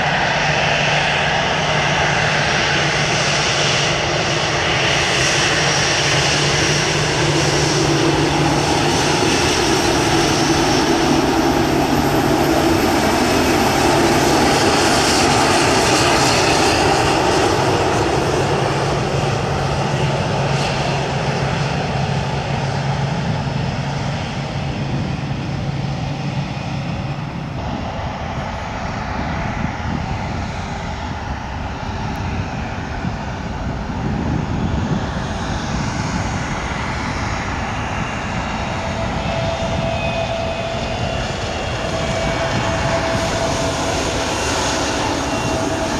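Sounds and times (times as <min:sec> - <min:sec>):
airliner engines roaring: 0:00.0 - 0:45.9.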